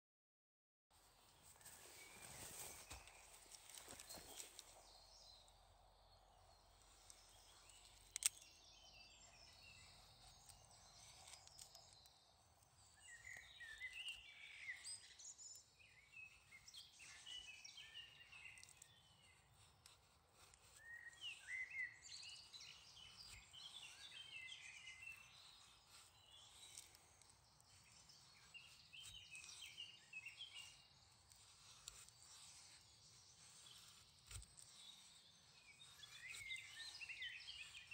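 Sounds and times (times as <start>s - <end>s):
songbird chirping: 0.9s - 37.9s.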